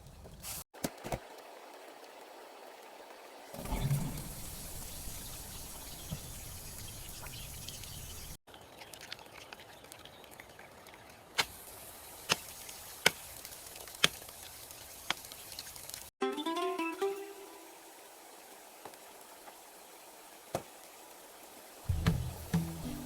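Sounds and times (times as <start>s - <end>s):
rain falling: 1.2s - 8.4s, 17.0s - 23.0s
sharp knocks: 21.9s - 22.9s.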